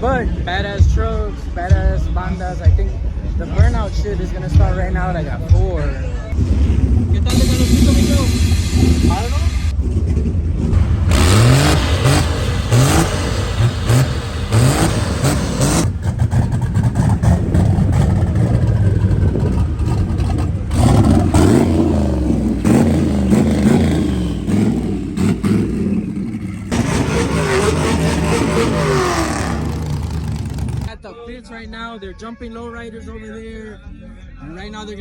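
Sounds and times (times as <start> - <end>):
truck engines revving: 4.3 - 30.9.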